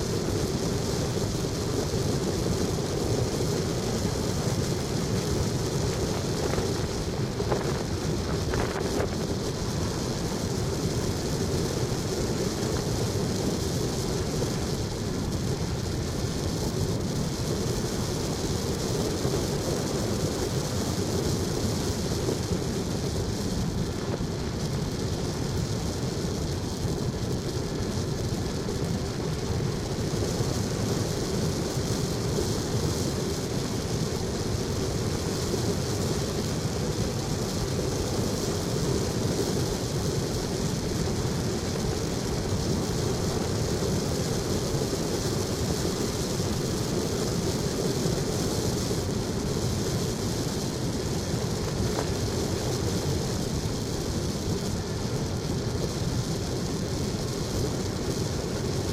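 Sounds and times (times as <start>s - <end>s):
vehicle driving rumble: 2.5s - 16.8s.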